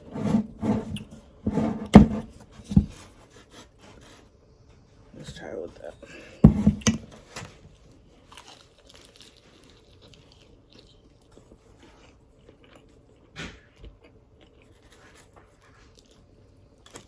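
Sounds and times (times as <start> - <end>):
person chewing crispy food: 7.8 - 17.0.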